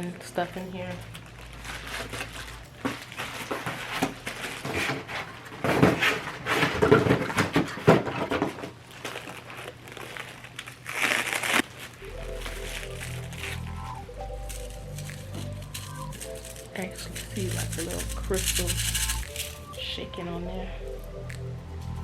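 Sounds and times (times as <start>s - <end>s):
packing material crinkling: 0.7s - 19.9s.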